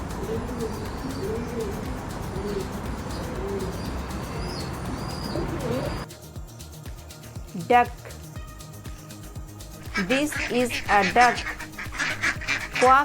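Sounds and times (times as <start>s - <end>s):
pigeons cooing: 0.0s - 6.1s, 9.8s - 13.0s
small birds chirping: 0.0s - 7.3s, 8.9s - 13.0s
background hiss: 0.0s - 13.0s.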